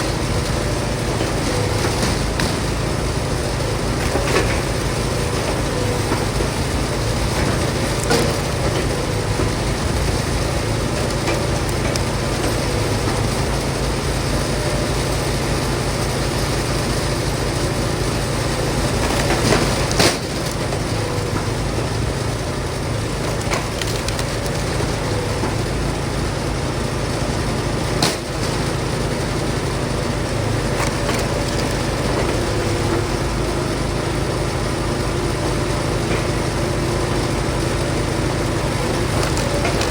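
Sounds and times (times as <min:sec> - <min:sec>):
log splitter engine running: 0:00.0 - 0:39.9
wood splitting cracks: 0:23.2 - 0:24.9, 0:39.0 - 0:39.9.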